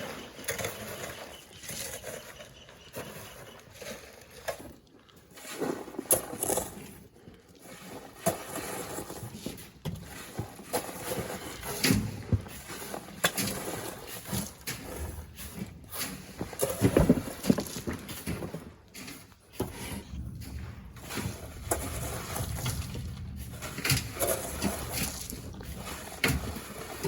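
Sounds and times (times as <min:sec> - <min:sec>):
shovel scraping sand: 0:05.3 - 0:07.0, 0:07.7 - 0:27.0.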